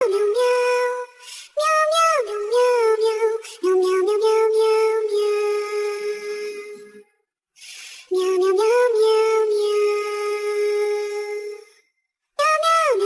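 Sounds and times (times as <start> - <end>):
synthetic voice singing: 0.0 - 7.0, 8.1 - 11.7, 12.4 - 13.0.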